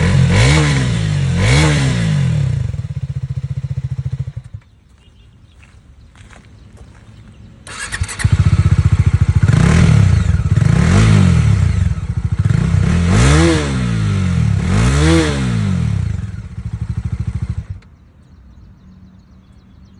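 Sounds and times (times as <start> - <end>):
motorcycle engine starting: 0.0 - 5.2, 7.6 - 18.0
motorcycle engine idling and revving: 0.0 - 19.3.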